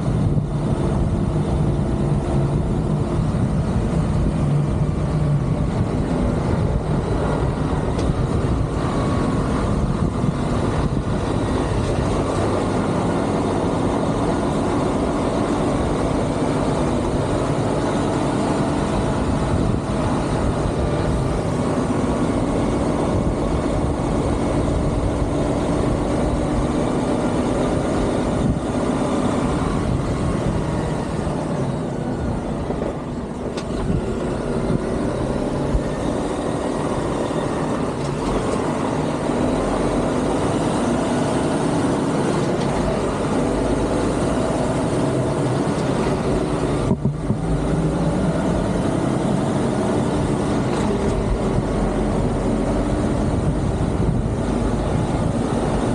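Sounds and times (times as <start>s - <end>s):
diesel truck engine running: 0.0s - 55.9s.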